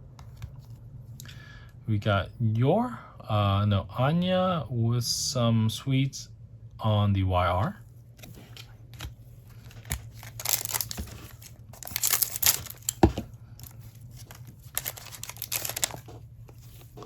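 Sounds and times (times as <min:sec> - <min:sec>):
foil wrapper tearing and crinkling: 0:09.6 - 0:16.1.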